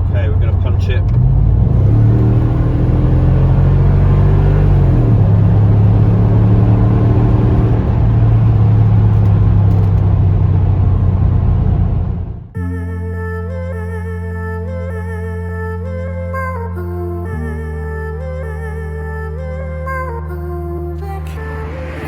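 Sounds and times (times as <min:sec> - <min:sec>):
car engine accelerating: 0:00.0 - 0:12.6, 0:18.2 - 0:22.0
music: 0:12.6 - 0:22.0.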